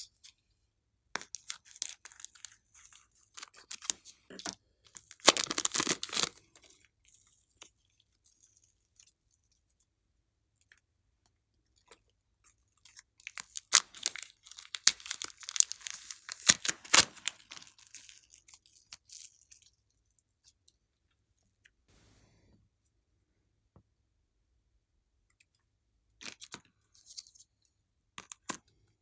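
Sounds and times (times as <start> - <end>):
slime squishing and popping: 5.2 - 6.3, 13.4 - 17.7.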